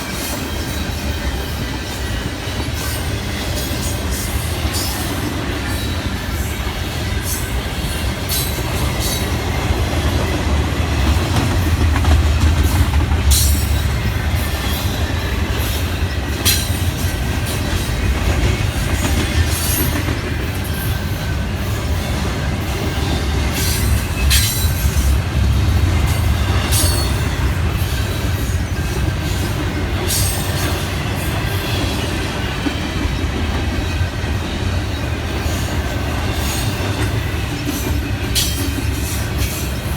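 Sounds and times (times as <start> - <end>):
train cars rumbling past: 0.0 - 39.9
wheels clicking over rail joints: 0.1 - 34.0.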